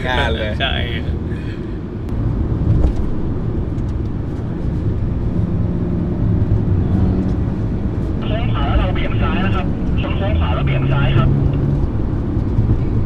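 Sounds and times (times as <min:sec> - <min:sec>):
car engine rumble: 0:00.0 - 0:13.0
road noise inside car: 0:00.0 - 0:13.0.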